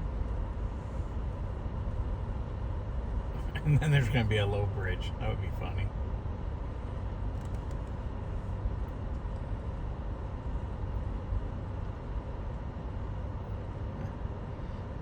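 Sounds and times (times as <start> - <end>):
vehicle engines idling: 3.3 - 5.9.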